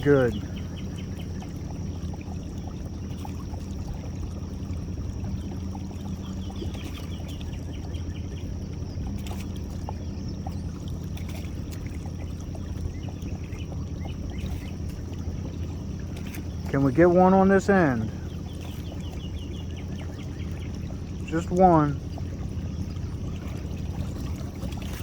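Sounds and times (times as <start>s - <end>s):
outboard motor idling: 0.0s - 25.0s
water trickling: 0.0s - 25.0s.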